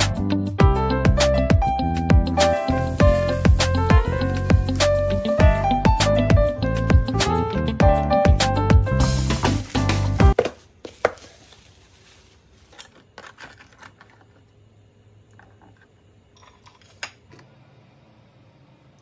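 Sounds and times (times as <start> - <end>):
background music: 0.0 - 10.4.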